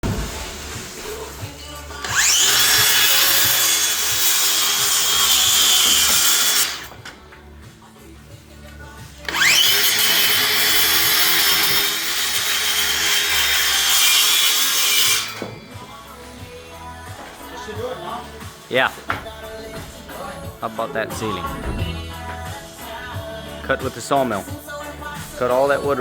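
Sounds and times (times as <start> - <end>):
power saw cutting wood: 1.9 - 7.0, 9.3 - 16.1.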